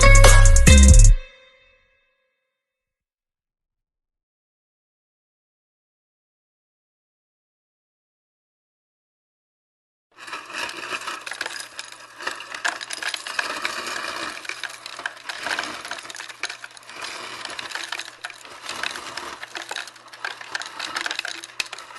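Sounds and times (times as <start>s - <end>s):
dense crackling with clicks: 10.2s - 21.9s.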